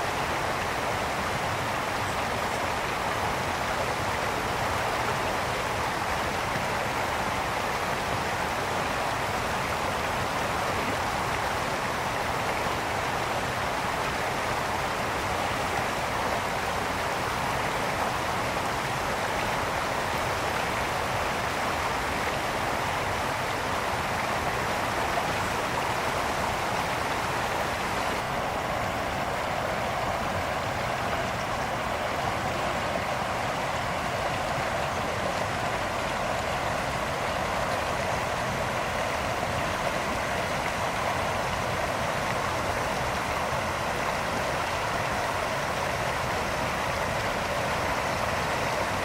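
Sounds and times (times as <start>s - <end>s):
brook flowing over rocks: 0.0s - 49.0s.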